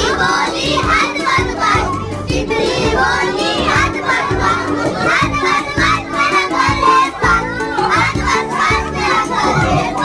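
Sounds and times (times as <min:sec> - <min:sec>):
children singing together: 0:00.0 - 0:10.0
low thumps: 0:09.2 - 0:10.0.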